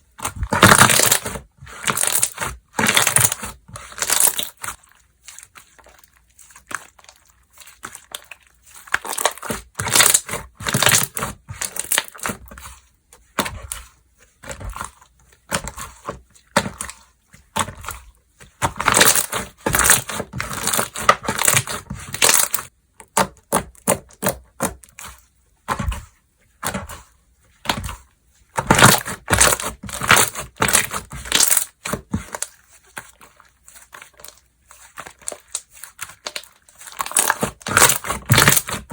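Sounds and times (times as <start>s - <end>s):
slime crackling and popping: 0.2s - 12.4s, 18.6s - 22.7s, 33.7s - 38.9s.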